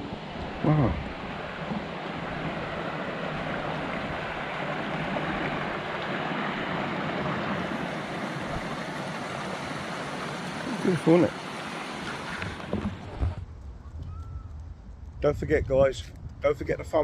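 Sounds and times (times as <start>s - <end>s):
stream water rushing: 0.0s - 13.4s.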